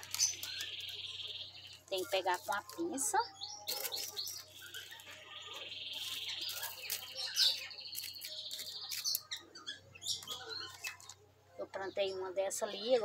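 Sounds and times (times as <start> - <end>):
pebbles clicking in gravel: 0.0 - 1.0, 3.6 - 5.2.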